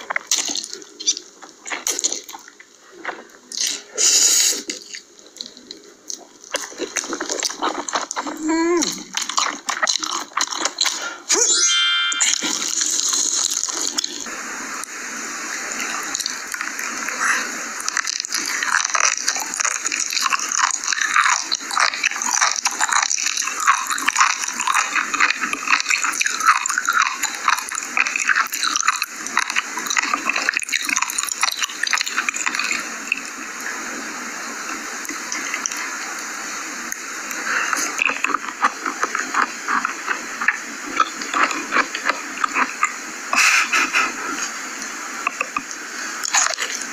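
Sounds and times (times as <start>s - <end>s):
chewing and biting: 4.7s - 11.0s, 17.9s - 32.8s, 37.4s - 43.6s.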